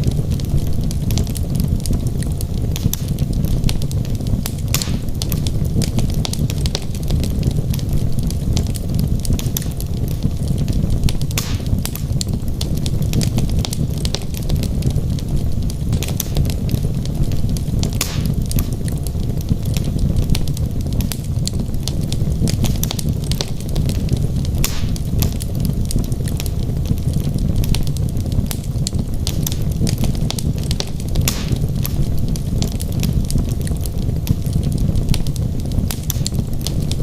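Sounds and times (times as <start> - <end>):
fire roaring in fireplace: 0.0 - 37.0
wood crackling: 0.0 - 37.0
loud wood pops: 4.7 - 5.4, 11.3 - 12.3, 17.8 - 18.8, 24.6 - 25.5, 29.3 - 32.9.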